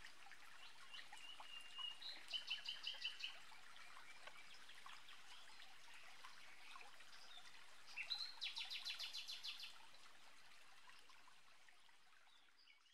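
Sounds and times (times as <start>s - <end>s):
faint birdsong: 0.5s - 9.8s.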